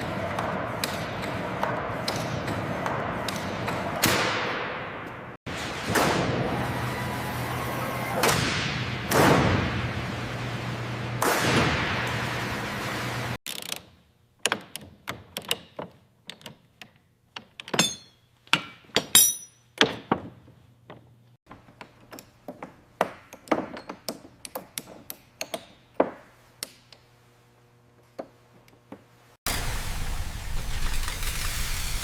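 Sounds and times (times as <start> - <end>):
loud rushing hiss: 29.5 - 32.0.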